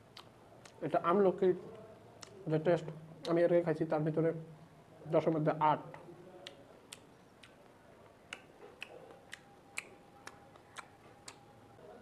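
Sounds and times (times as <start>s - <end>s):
mouth clicks from chewing: 6.4s - 11.4s.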